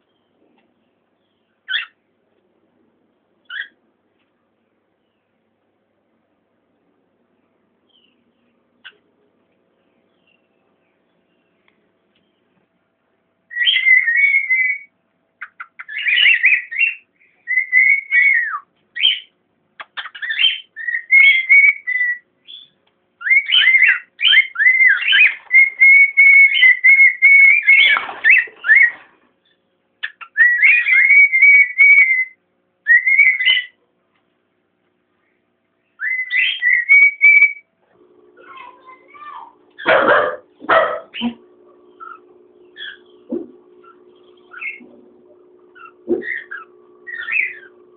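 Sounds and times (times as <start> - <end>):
cockatiel whistling: 13.5 - 14.9, 15.5 - 19.3, 20.0 - 29.0, 30.0 - 33.8, 36.0 - 37.6, 42.0 - 43.1, 43.8 - 44.8, 45.7 - 47.8.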